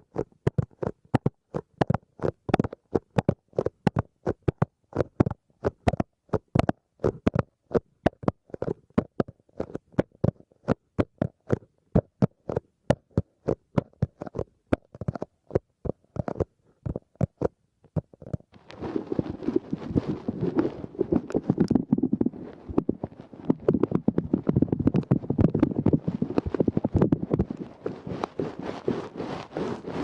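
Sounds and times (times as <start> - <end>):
crackly rustling: 13.2 - 30.0.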